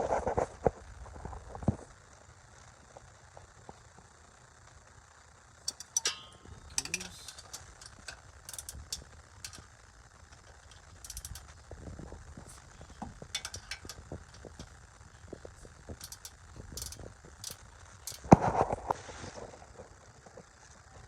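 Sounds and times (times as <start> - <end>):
ratchet wrench clicking: 5.7 - 11.8, 12.4 - 14.8, 15.9 - 18.4.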